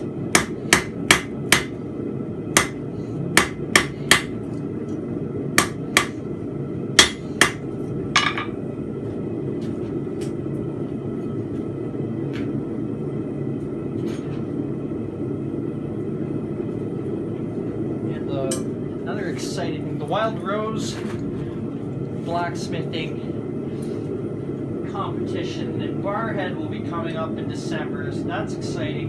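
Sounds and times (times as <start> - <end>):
hammer striking steel on anvil: 0.3 - 1.8, 2.6 - 2.8, 3.4 - 4.4, 5.6 - 6.2, 7.0 - 7.6, 8.2 - 8.6.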